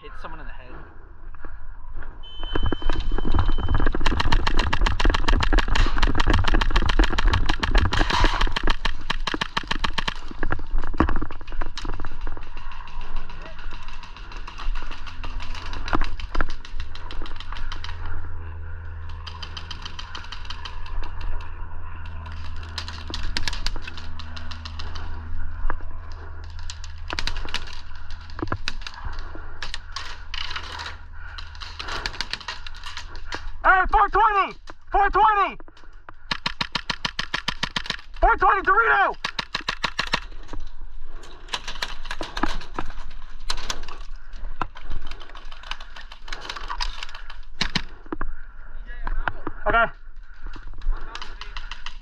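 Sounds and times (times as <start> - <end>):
steady low hum: 0.0 - 35.0
low rumble: 0.8 - 33.7
airsoft guns firing: 2.2 - 10.8, 19.0 - 25.2, 36.2 - 40.4, 45.8 - 48.0.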